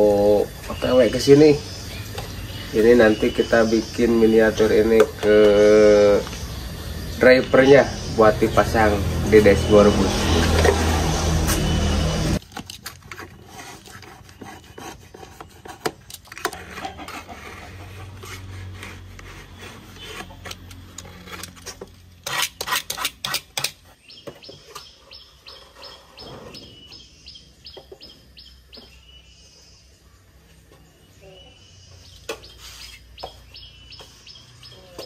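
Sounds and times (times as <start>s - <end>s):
bird chirping: 0.0s - 12.4s, 13.0s - 35.0s.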